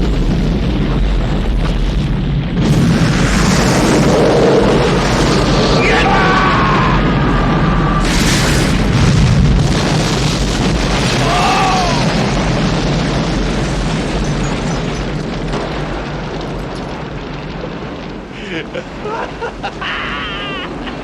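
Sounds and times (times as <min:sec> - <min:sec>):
deep rumble: 0:00.0 - 0:21.0
explosion blast: 0:00.0 - 0:21.0.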